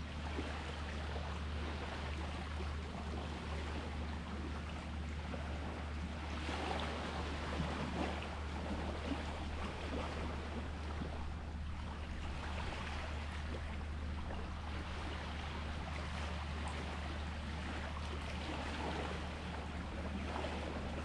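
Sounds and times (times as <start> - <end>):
sea water washing: 0.0 - 21.0.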